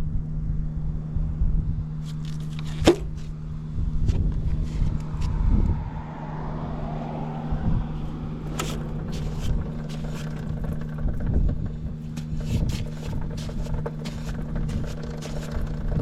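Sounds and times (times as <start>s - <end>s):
motorcycle engine idling: 7.6s - 16.0s.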